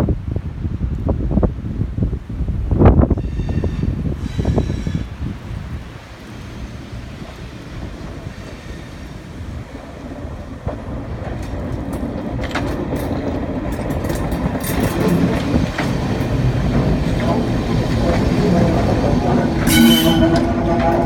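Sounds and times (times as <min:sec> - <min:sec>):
train rumble: 0:00.0 - 0:21.0
wheels clicking over rail joints: 0:07.1 - 0:21.0.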